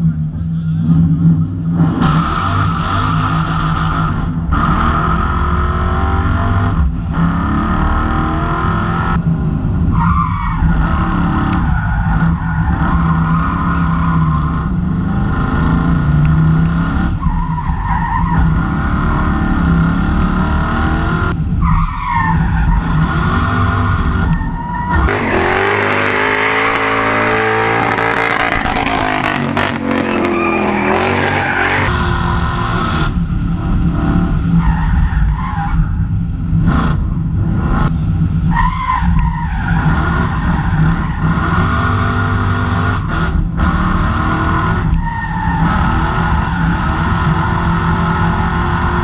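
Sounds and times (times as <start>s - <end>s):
race car engine revving: 0.0s - 49.0s.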